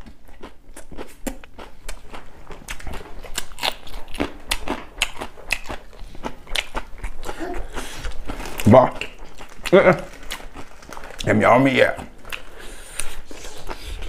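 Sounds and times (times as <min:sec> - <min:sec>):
crunching and chewing salad: 0:00.0 - 0:14.0.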